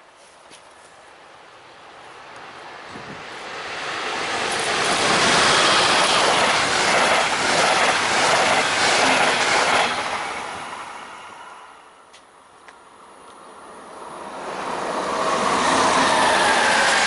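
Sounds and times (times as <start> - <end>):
train wheels rushing on rails: 2.2 - 12.2, 13.8 - 17.0.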